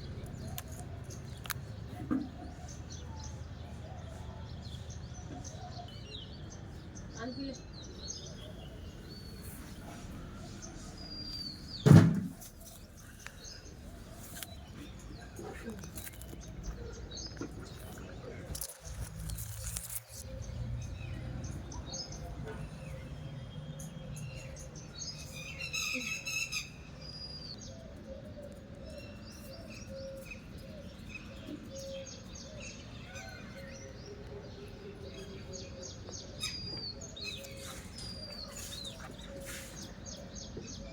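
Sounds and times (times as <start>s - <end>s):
birds chirping: 0.0s - 40.9s
loud thump: 11.8s - 12.4s.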